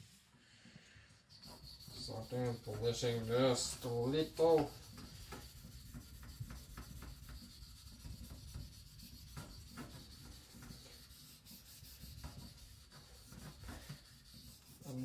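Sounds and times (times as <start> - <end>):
knife blade rubbing on whetstone: 1.3 - 12.8.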